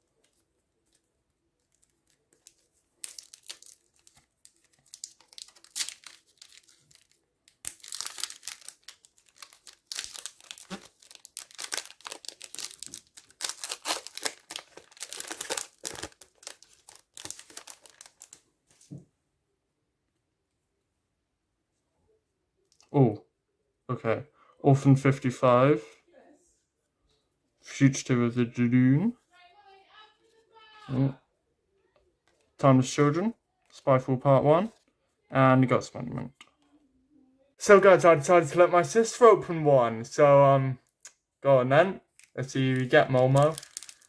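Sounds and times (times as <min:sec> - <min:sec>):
wrapper tearing and crinkling: 0:01.7 - 0:18.4, 0:42.2 - 0:44.0.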